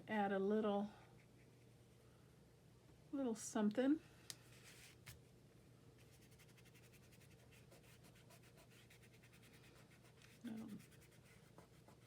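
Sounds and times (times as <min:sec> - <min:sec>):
colored pencil scratching on paper: 0:06.0 - 0:12.0.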